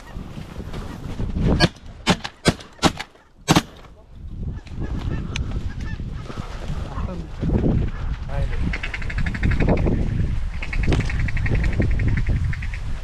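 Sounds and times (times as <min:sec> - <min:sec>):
shotgun shots: 0:01.6 - 0:03.8.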